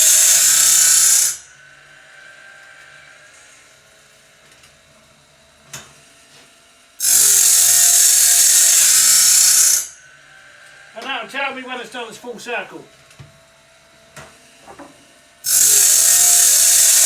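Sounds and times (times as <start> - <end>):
saw blade sharpener grinding: 0.0 - 4.0, 7.0 - 12.1, 15.4 - 17.0.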